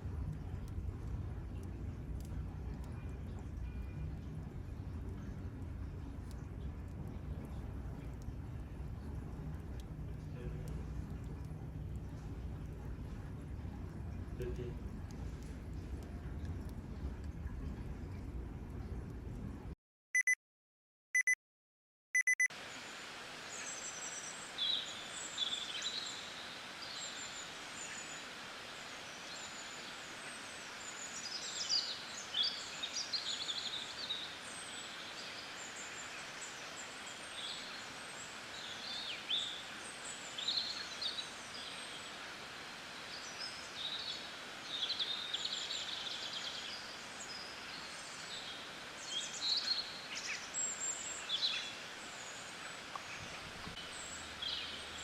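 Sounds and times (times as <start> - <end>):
steady background hiss: 0.0 - 19.7, 22.6 - 55.0
short electronic beeps: 20.2 - 20.4, 21.2 - 21.4, 22.2 - 22.5
birds chirping and trilling: 43.2 - 55.0.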